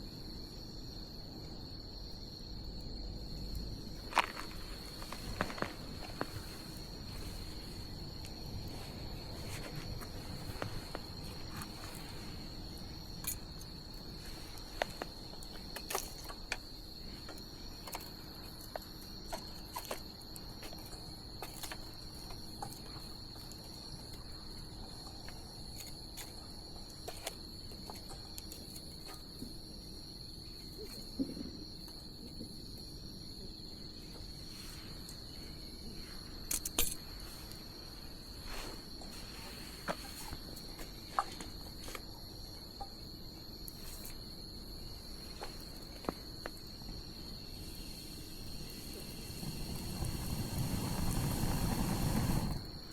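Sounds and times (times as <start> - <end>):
crickets trilling: 0.0 - 52.9
bonfire crackling and popping: 47.9 - 52.7.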